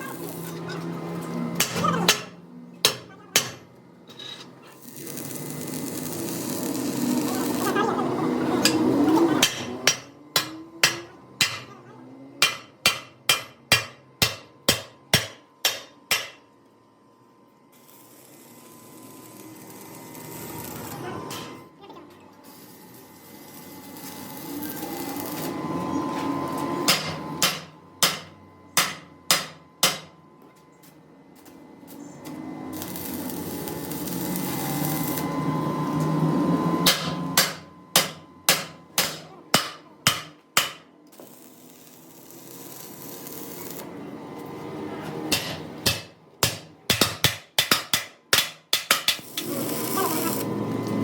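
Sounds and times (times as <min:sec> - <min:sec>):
hammer striking metal: 0:01.6 - 0:03.7, 0:09.4 - 0:11.7, 0:12.4 - 0:16.4, 0:26.9 - 0:30.2, 0:36.8 - 0:40.9, 0:45.3 - 0:49.3.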